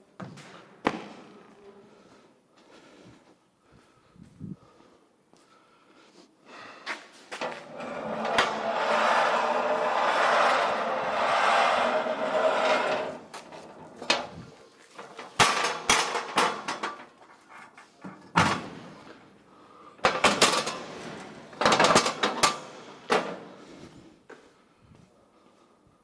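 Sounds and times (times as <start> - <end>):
knocks and clatters: 21.6 - 23.4.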